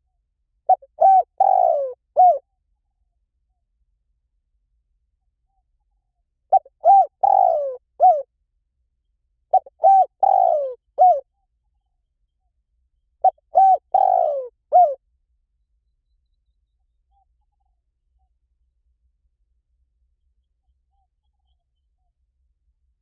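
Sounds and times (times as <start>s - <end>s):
dove cooing: 0.7s - 2.4s, 6.5s - 8.3s, 9.5s - 11.2s, 13.2s - 15.0s.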